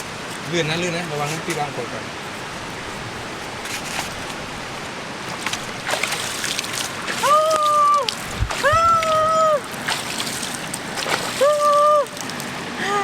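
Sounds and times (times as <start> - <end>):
water rushing over rocks: 4.2 - 13.0
small water splashes: 5.2 - 12.8.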